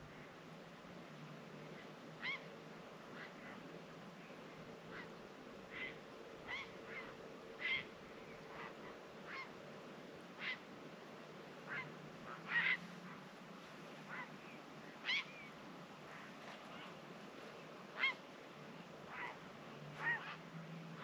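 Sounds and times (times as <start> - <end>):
short bird calls: 19.1 - 20.4.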